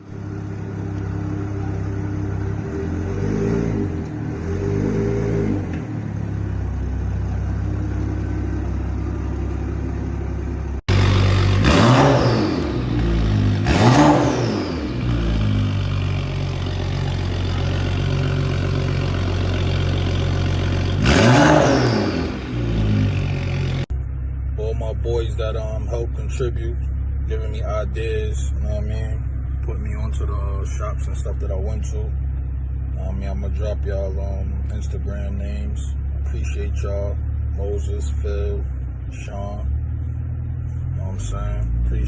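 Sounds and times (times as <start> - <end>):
car engine idling: 0.0 - 11.6, 15.0 - 21.0, 23.1 - 42.0
engine revving: 0.0 - 23.8.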